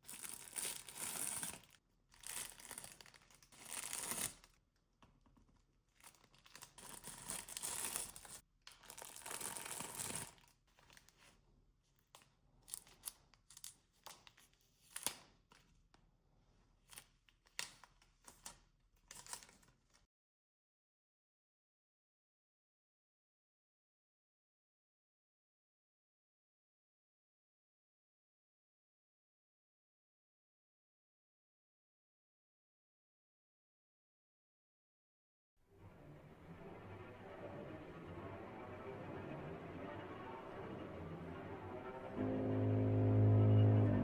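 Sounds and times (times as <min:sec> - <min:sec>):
packaging crinkles and clicks: 0:06.0 - 0:11.2.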